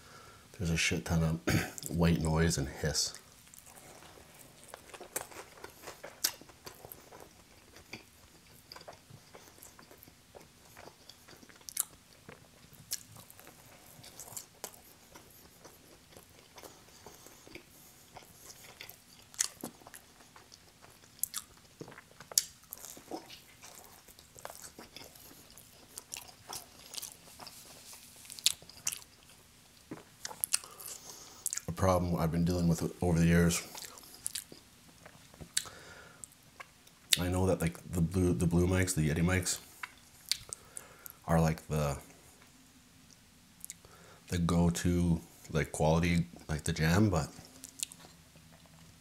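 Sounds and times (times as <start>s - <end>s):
person chewing food: 3.1s - 31.8s, 33.6s - 37.2s, 39.6s - 41.2s, 47.3s - 49.0s.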